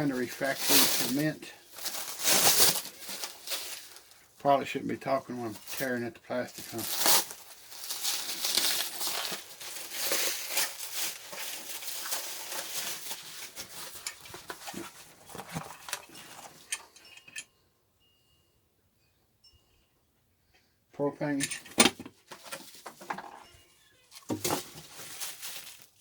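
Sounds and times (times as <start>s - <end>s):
plastic wrap tearing and crinkling: 0.0s - 4.2s, 6.5s - 16.0s, 24.2s - 26.0s.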